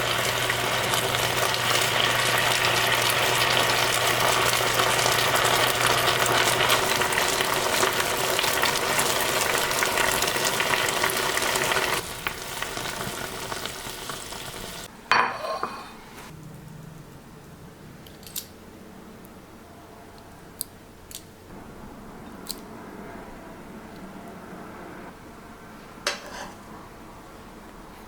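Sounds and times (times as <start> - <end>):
food sizzling in a frying pan: 0.0 - 15.5.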